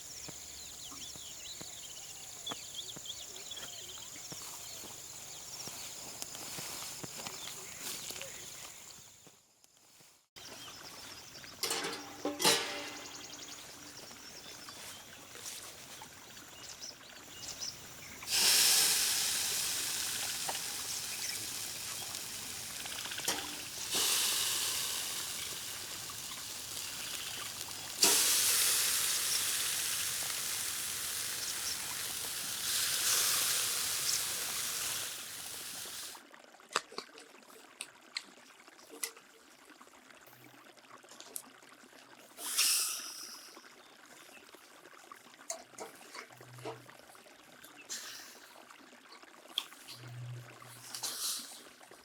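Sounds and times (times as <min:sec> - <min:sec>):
food sizzling in a pan: 0:18.0 - 0:36.2.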